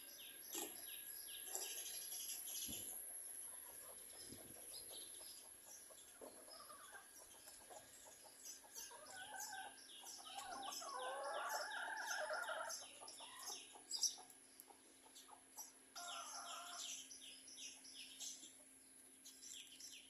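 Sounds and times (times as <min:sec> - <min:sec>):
small bird chirping: 0:00.0 - 0:20.0
chicken calling: 0:08.9 - 0:13.8, 0:16.0 - 0:17.0.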